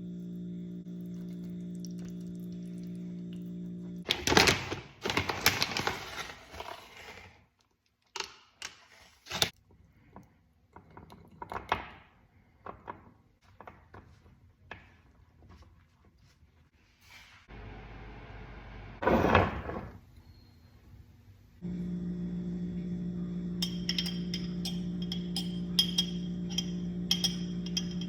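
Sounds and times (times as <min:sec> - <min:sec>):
microwave oven humming: 0:00.0 - 0:04.1, 0:17.5 - 0:19.1, 0:21.6 - 0:28.0.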